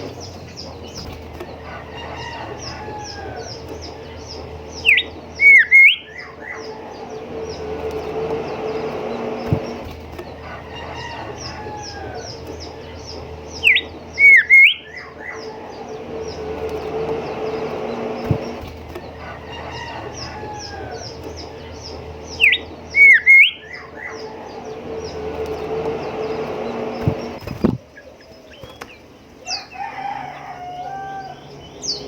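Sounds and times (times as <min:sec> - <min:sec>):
rapid faint high ticking: 0:00.0 - 0:29.4
low hum: 0:00.0 - 0:29.5
bird whistling song: 0:00.0 - 0:29.9.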